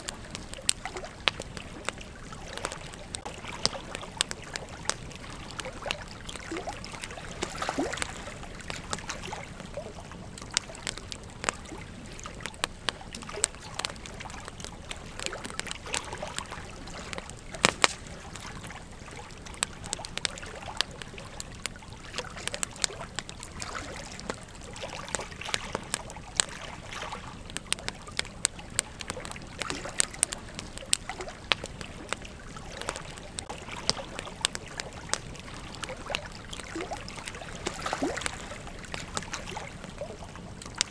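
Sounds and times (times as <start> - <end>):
fire hissing: 0.0 - 20.8
campfire crackling and popping: 0.0 - 40.9.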